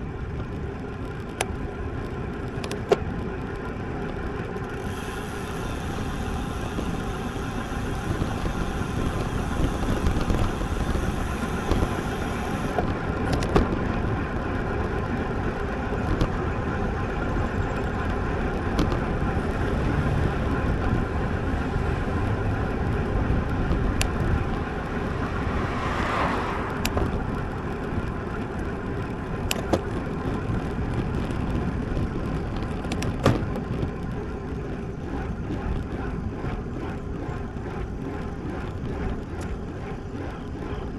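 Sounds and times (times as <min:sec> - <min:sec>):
bike tyre noise: 0:00.0 - 0:40.9
sharp clicks and ticks: 0:22.2 - 0:25.5, 0:26.6 - 0:34.2
wind rushing: 0:23.7 - 0:27.4.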